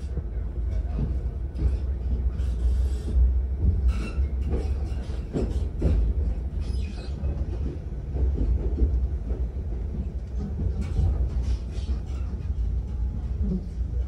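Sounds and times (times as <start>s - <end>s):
train low rumble: 0.0s - 14.0s
wheels knocking on track: 3.6s - 6.6s.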